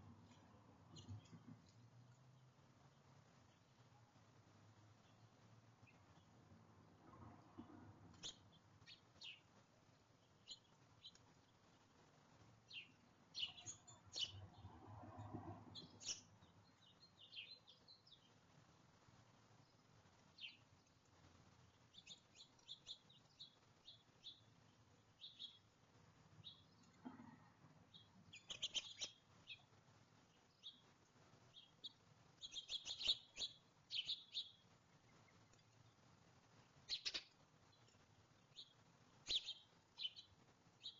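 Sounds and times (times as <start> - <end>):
faint low muffled sounds: 0.0 - 40.9
birds chirping: 8.1 - 11.9, 12.6 - 14.8, 15.7 - 18.5, 19.6 - 36.0, 36.6 - 40.9.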